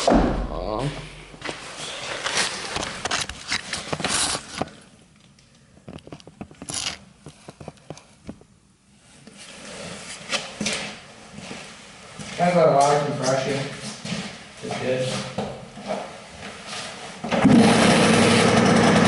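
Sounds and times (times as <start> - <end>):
scraping rubbing and knocking: 1.5 - 4.7.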